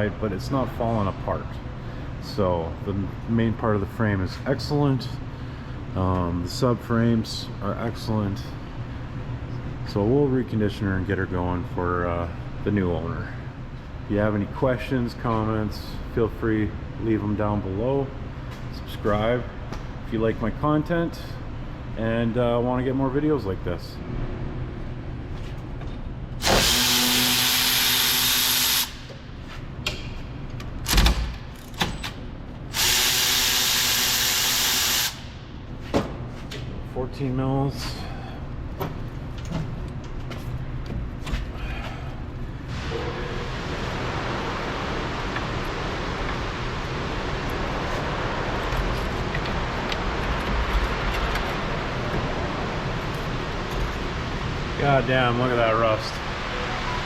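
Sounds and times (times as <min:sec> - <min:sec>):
handheld power tool running: 0:26.4 - 0:29.1, 0:32.7 - 0:35.3.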